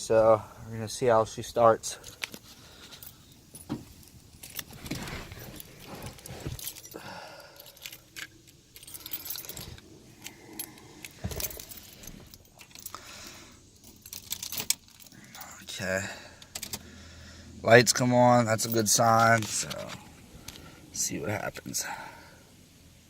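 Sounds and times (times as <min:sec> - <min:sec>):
car keys jangling: 0:01.8 - 0:13.0, 0:13.7 - 0:15.6, 0:18.6 - 0:20.6
knocks and rustling: 0:02.1 - 0:06.9, 0:11.1 - 0:12.4.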